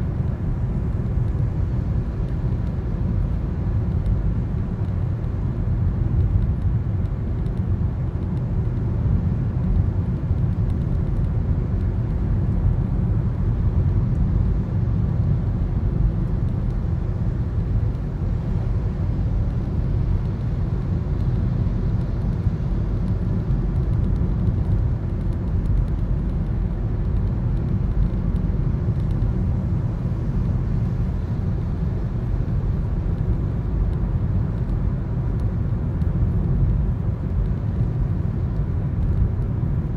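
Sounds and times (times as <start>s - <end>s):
road and engine rumble in car: 0.0s - 39.9s.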